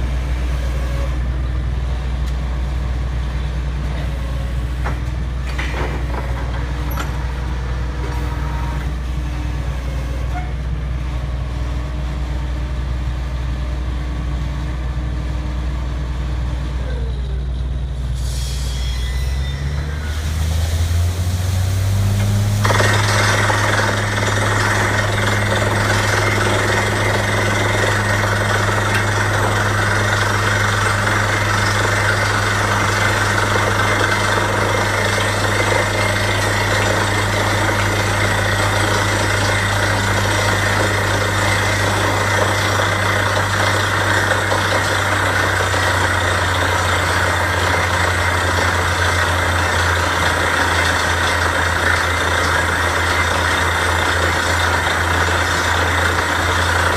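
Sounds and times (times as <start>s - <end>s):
drilling rig engine running: 0.0s - 56.9s.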